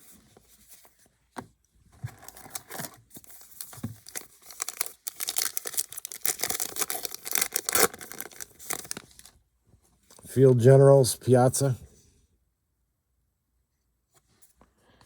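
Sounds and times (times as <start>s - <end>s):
card pack wrapper crinkling: 2.1s - 9.3s.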